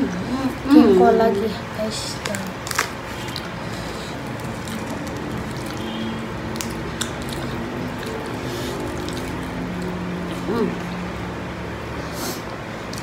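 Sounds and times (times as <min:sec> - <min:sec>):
wet chewing: 0:02.2 - 0:11.1.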